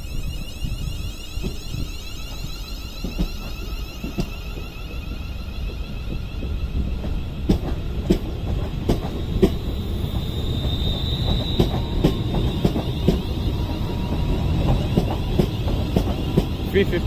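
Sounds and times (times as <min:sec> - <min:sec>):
thin high whine: 0:00.0 - 0:07.5
train rumble: 0:00.0 - 0:17.0
train wheels clicking over rail joints: 0:00.7 - 0:17.0.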